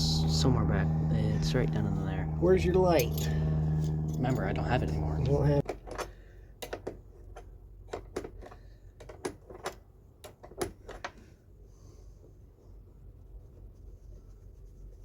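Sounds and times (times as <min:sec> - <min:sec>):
tools clicking and knocking: 0:05.6 - 0:11.2.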